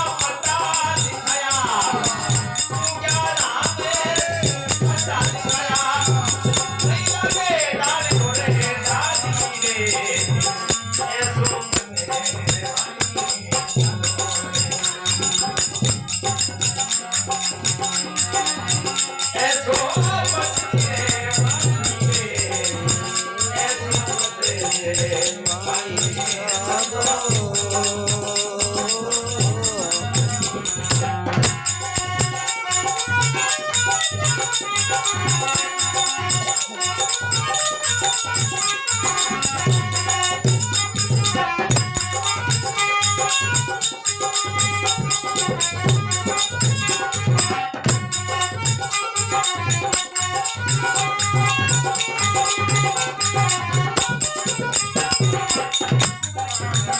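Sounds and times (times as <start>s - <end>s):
rattling hand percussion: 0.0s - 56.9s
steady drum beat: 0.0s - 56.9s.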